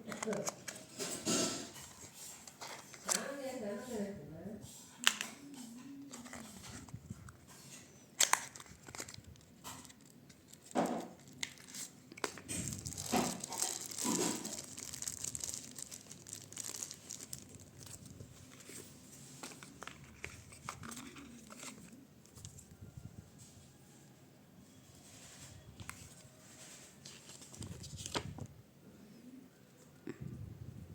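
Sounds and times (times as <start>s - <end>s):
packaging crinkling and tearing: 8.2s - 22.6s, 25.2s - 28.4s.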